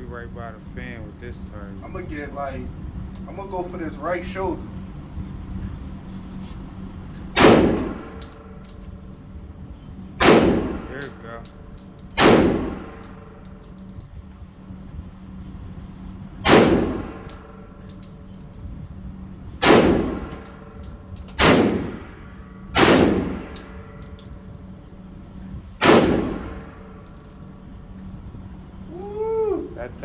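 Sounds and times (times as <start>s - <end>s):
echoing gunshots: 7.4s - 8.2s, 10.2s - 11.2s, 12.2s - 13.0s, 16.4s - 17.3s, 19.6s - 20.5s, 21.4s - 24.0s, 25.8s - 27.0s.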